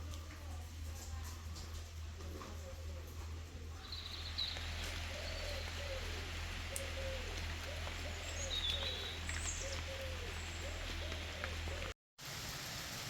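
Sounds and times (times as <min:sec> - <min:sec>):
steady rain: 0:03.8 - 0:13.0
bird low rising and falling call: 0:03.9 - 0:11.9.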